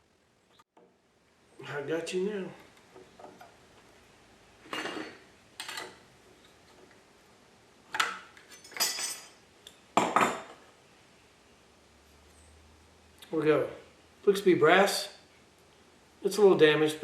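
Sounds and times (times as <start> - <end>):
metal tool clinking and scraping: 4.7 - 6.6, 8.4 - 9.4.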